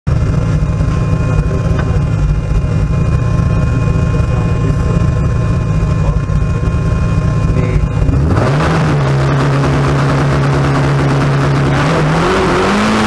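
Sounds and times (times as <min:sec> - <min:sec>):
thin steady whine: 0:00.1 - 0:08.3
car engine idling: 0:00.1 - 0:13.0.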